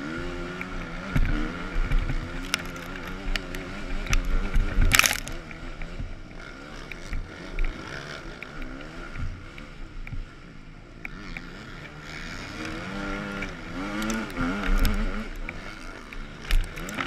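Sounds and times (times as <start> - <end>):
motocross bike engine revving: 0.0 - 17.0
sharp clicks: 12.6 - 17.0.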